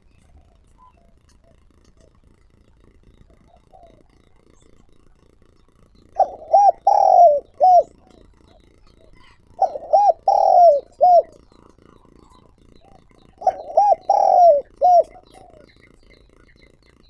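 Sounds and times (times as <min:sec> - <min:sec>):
dove cooing: 0:03.5 - 0:04.0, 0:06.2 - 0:16.8.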